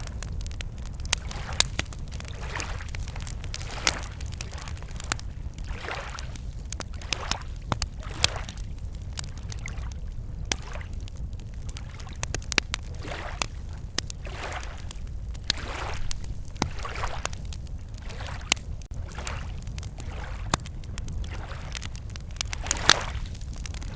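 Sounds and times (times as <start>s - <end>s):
steady low rumble: 0.0s - 5.7s, 18.6s - 23.9s
campfire crackling and popping: 0.0s - 23.9s
lake waves lapping on shore: 1.1s - 8.7s, 9.4s - 9.9s, 10.5s - 11.0s, 11.8s - 12.2s, 12.9s - 20.6s, 21.2s - 23.9s.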